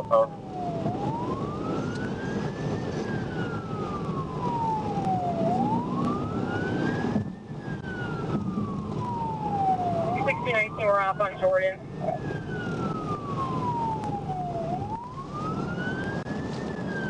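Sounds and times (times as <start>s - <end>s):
police siren wailing: 0.0s - 17.0s.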